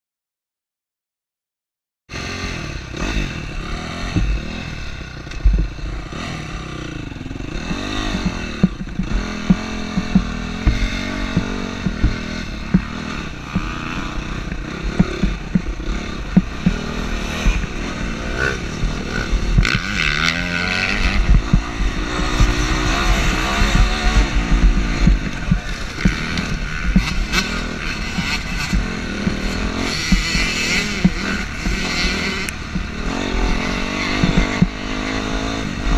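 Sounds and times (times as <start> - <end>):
dirt bike engine revving: 2.1 - 35.9
knocks and clatter: 5.2 - 5.9, 7.6 - 35.1.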